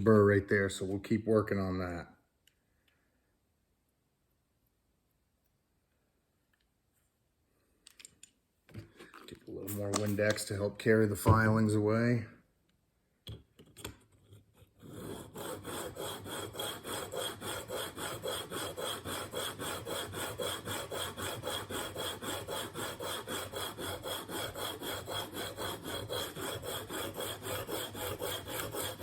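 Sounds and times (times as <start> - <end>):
blade rasping on sharpening plate: 14.8 - 29.0.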